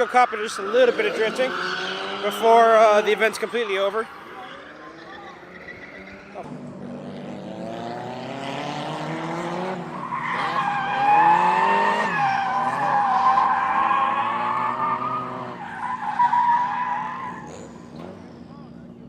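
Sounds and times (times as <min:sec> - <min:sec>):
tyre squeal: 0:00.0 - 0:06.4, 0:09.9 - 0:18.0
car engine revving: 0:00.0 - 0:18.9.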